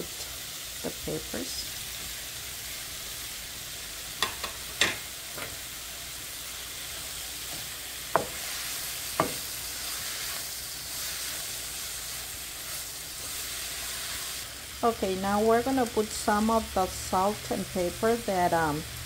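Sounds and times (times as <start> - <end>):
vegetables sizzling in a frying pan: 0.0 - 19.0
utensils clicking against pan: 4.2 - 5.6.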